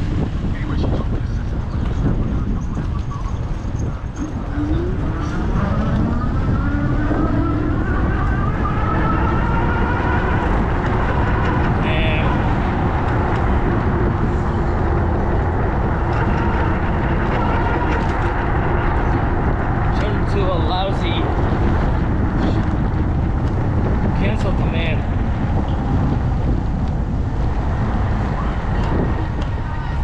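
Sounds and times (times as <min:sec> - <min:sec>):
wind and road noise: 0:00.0 - 0:30.0.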